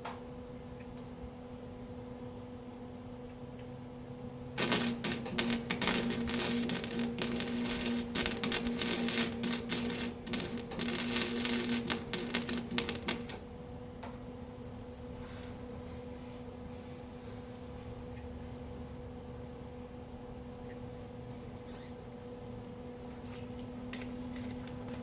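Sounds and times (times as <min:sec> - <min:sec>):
steady low hum: 0:00.3 - 0:25.0
arc welder crackling: 0:04.5 - 0:13.7.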